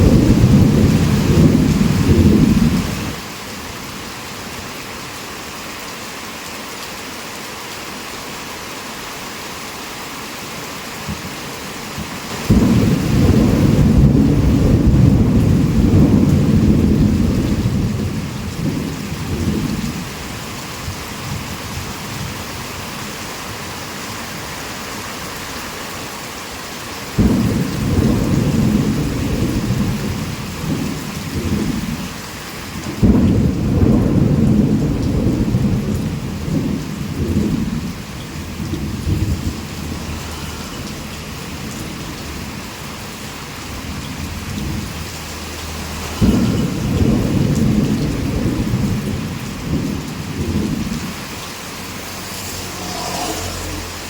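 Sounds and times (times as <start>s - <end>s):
thunder rolling: 0.0s - 3.2s, 12.3s - 22.4s, 27.2s - 32.1s, 32.8s - 54.0s
heavy rain falling: 0.0s - 54.0s.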